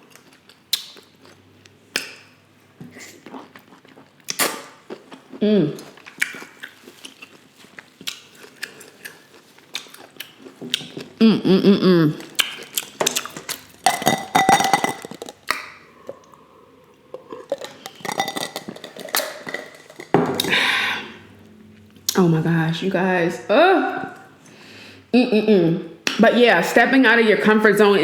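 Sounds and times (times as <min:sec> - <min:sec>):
chewing and wet mouth sounds: 0:00.0 - 0:11.2, 0:12.1 - 0:20.6
person humming: 0:11.2 - 0:12.2
cutlery and dishes clinking: 0:13.8 - 0:15.4.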